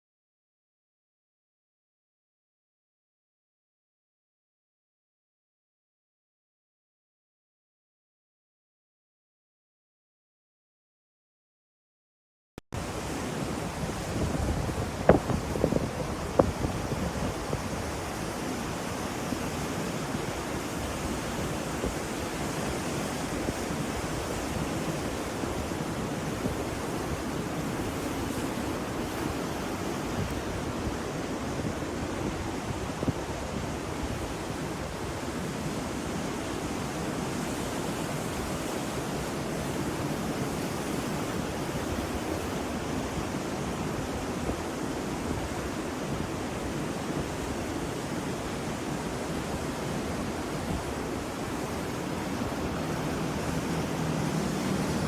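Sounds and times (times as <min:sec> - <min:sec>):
ocean waves breaking on shore: 0:12.8 - 0:55.0.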